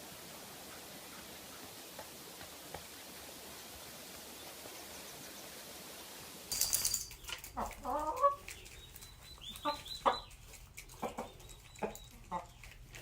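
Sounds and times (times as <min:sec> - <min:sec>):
chicken calling: 0:07.5 - 0:12.6.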